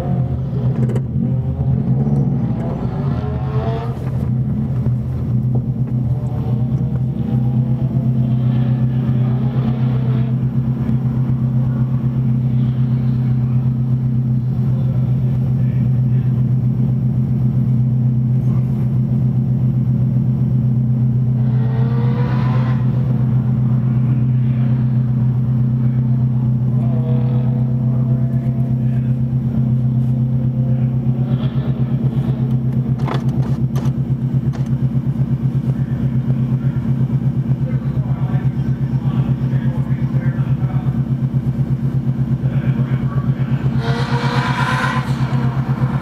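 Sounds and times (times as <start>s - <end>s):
passing car engine: 0.0s - 14.5s, 43.0s - 46.0s
car engine idling: 0.0s - 46.0s.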